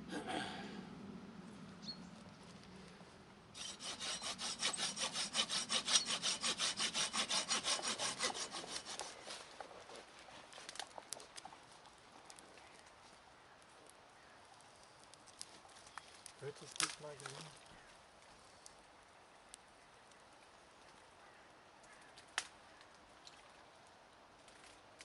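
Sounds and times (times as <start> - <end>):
hand saw cutting wood: 3.6 - 9.4.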